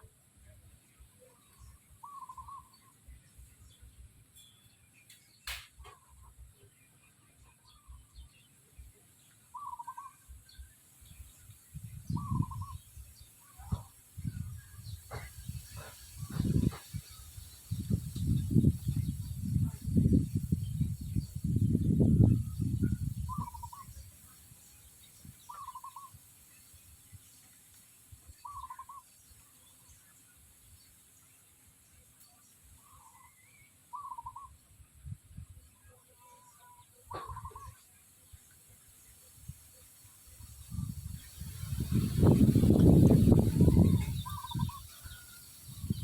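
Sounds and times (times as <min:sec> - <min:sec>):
chickens calling: 0:37.1 - 0:37.8, 0:41.9 - 0:46.0.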